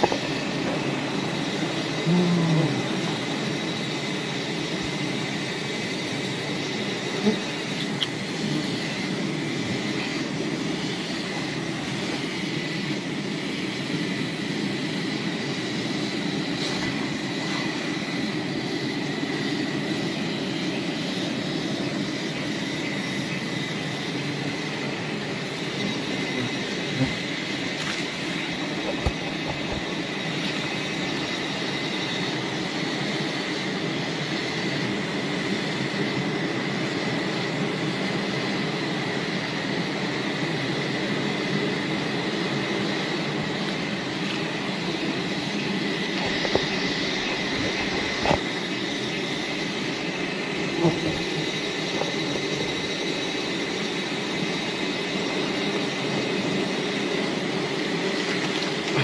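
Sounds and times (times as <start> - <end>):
bees buzzing: 0.0 - 5.0, 6.6 - 12.2, 24.7 - 32.0, 43.5 - 53.4
high whine: 0.0 - 37.6, 42.0 - 59.0.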